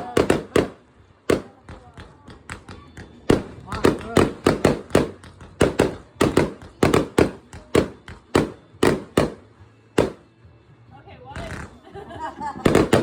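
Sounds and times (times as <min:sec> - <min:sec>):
fireworks bangs: 0:00.0 - 0:01.8, 0:03.3 - 0:10.2, 0:12.6 - 0:13.0.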